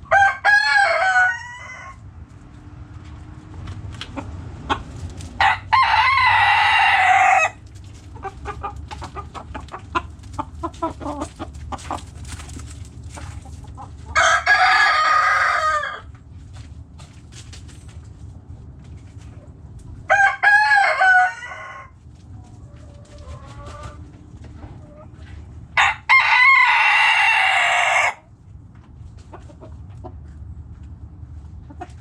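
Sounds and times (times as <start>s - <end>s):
roosters crowing: 0.0s - 2.2s, 4.2s - 12.1s, 13.2s - 16.2s, 20.0s - 28.4s
hens clucking: 3.1s - 16.2s, 21.5s - 28.2s, 28.8s - 32.0s.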